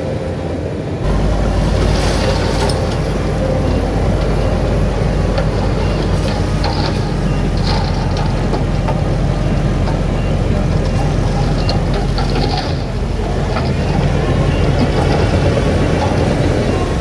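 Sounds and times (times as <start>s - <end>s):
heavy diesel machinery running: 0.6s - 17.0s
metal clanks and rattles: 1.0s - 17.0s.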